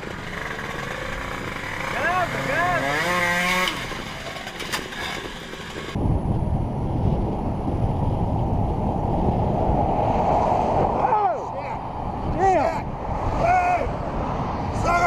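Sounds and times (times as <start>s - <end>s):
motorcycle riding rush: 0.0s - 15.0s
wind buffeting microphone: 5.9s - 15.0s.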